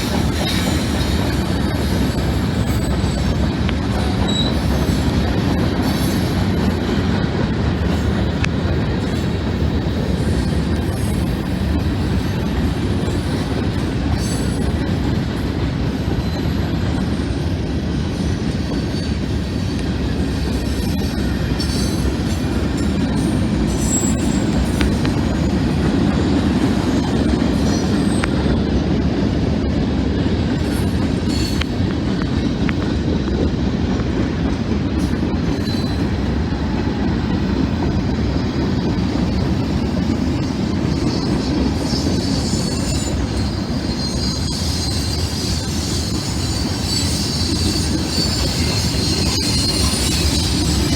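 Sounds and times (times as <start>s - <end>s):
train wheels rumbling on rails: 0.0s - 50.9s
high-pitched wheel squeal: 4.0s - 5.1s, 22.8s - 25.6s, 40.9s - 50.9s.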